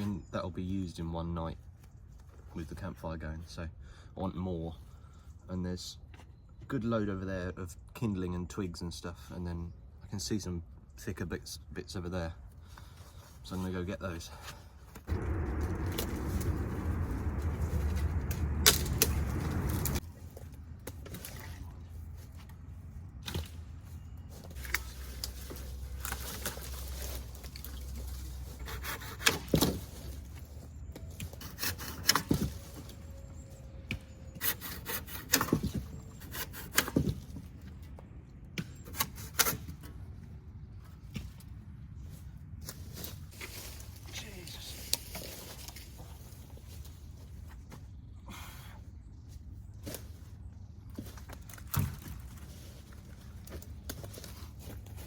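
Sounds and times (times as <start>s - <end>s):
dead branches snapping: 15.1s - 20.0s
loud rushing noise: 15.1s - 20.0s
footsteps rustling in forest litter: 23.6s - 28.6s, 42.0s - 48.0s, 49.4s - 55.0s.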